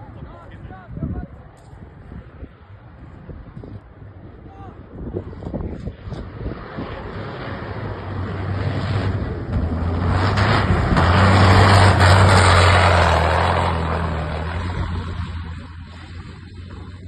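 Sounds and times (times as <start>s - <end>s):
tyre and wind noise: 0.0s - 17.0s
truck diesel engine drone: 6.8s - 17.0s.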